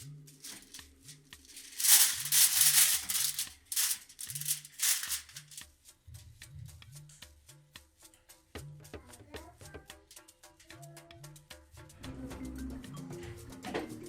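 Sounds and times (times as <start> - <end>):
aluminium foil crinkling: 0.4 - 5.6
background music with bass line: 5.8 - 14.0.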